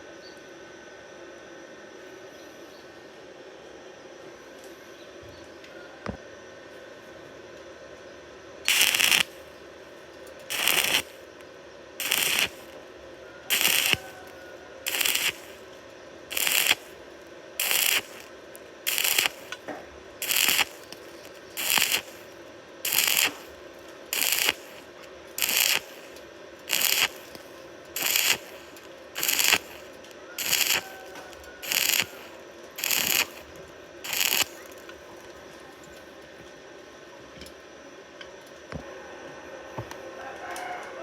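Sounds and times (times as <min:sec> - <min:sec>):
crackling welding arc: 0:08.7 - 0:36.0.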